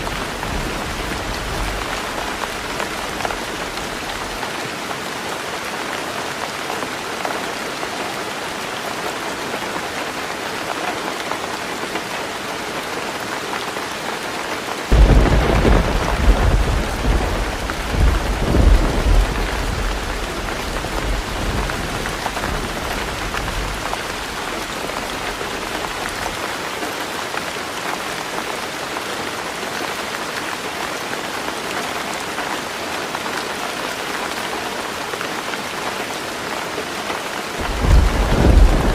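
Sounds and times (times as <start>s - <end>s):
heavy rain on a tin roof: 0.0s - 38.9s
thunder rumbling: 14.9s - 24.4s, 37.6s - 38.9s.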